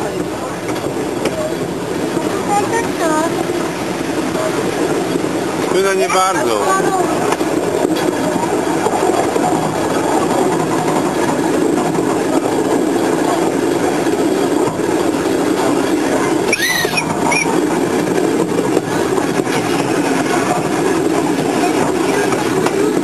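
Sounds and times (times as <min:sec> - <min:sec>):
train wheels rumbling on rails: 0:00.0 - 0:23.0
brief high squeal: 0:16.5 - 0:17.6.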